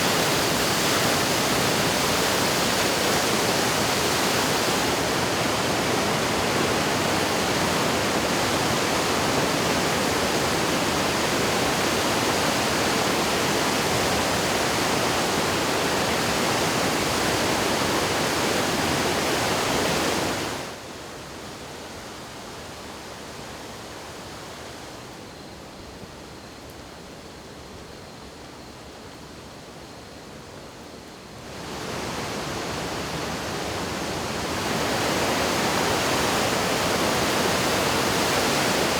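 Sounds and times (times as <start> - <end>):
river water rushing: 0.0 - 20.8, 31.5 - 38.9.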